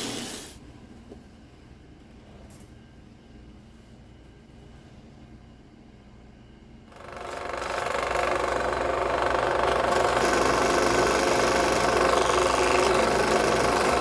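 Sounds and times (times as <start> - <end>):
power tool motor running: 7.0 - 14.0.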